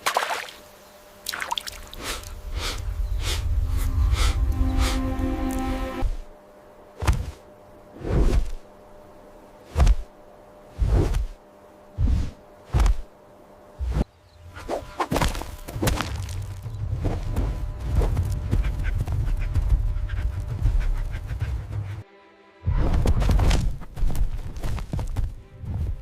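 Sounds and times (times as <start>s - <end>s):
low rumble: 2.0s - 6.3s, 15.6s - 22.0s
music: 2.4s - 7.2s, 15.5s - 26.0s
dramatic thuds and whooshes: 14.7s - 22.0s.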